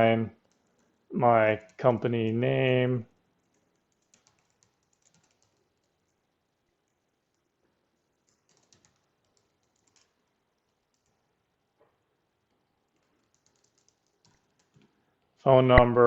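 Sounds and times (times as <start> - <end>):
keyboard typing: 0.4 - 2.4, 3.2 - 11.3, 12.5 - 14.9.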